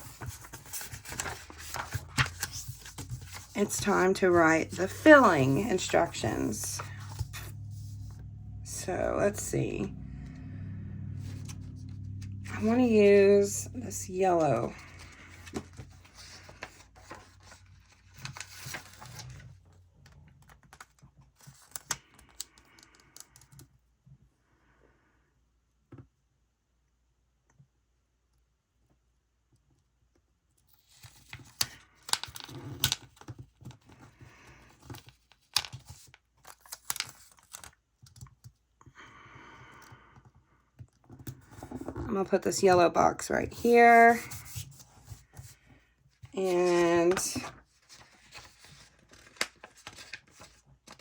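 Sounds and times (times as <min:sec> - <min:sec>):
sticker sheets rustling and crinkling: 0:00.0 - 0:08.1, 0:12.5 - 0:19.8, 0:30.7 - 0:38.5, 0:41.0 - 0:51.0.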